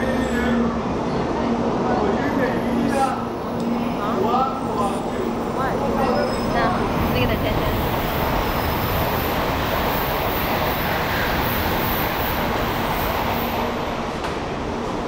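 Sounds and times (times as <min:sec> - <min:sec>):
bullet train rushing past: 0:00.0 - 0:15.0.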